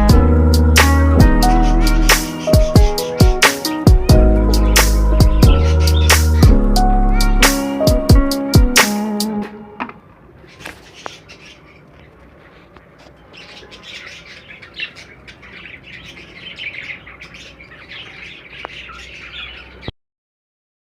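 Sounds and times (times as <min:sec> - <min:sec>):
birds chattering and squawking: 0:00.0 - 0:08.7, 0:10.2 - 0:19.9.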